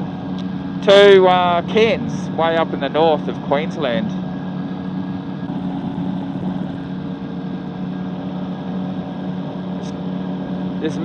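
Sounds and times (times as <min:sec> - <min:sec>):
engine and propeller droning: 0:00.0 - 0:11.0.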